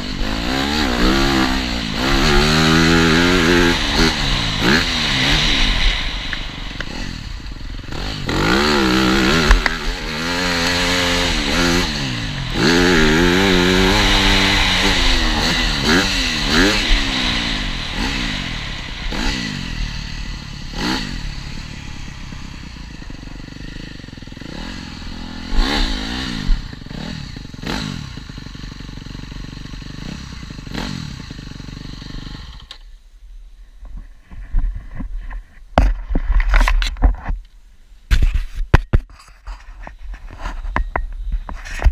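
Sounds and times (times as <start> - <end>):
motocross bike engine revving: 0.0 - 32.8.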